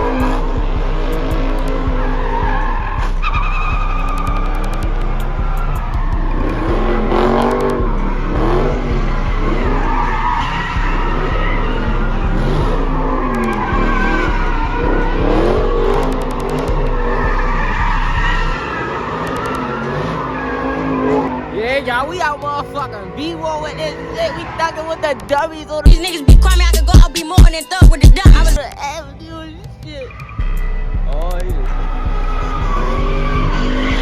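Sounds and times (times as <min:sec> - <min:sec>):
tires squealing on pavement: 0:00.0 - 0:27.0, 0:28.3 - 0:34.0
car engines revving: 0:00.0 - 0:34.0.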